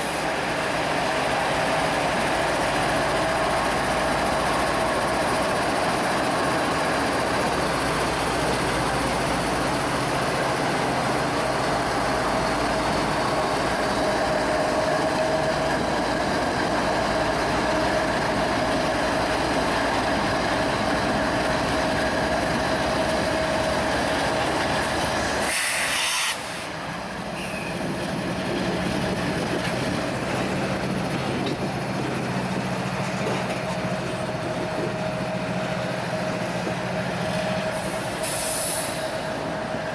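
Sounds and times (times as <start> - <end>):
train cars rolling past: 0.0 - 39.9
train wheel squeal: 22.9 - 29.6, 34.8 - 39.9.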